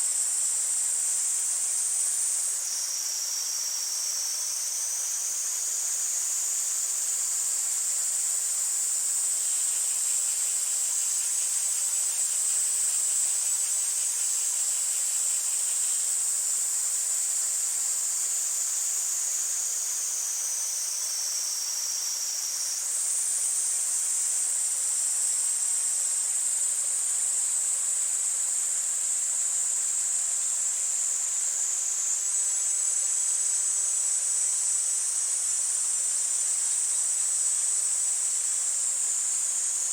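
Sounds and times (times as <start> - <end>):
cicadas buzzing shrilly: 0.0 - 28.1, 28.8 - 39.9
low pulsing cicada call: 0.0 - 39.9.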